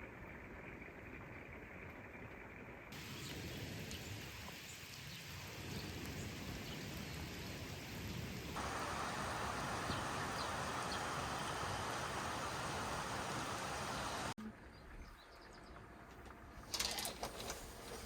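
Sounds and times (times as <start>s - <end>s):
rain hiss: 2.8s - 14.4s.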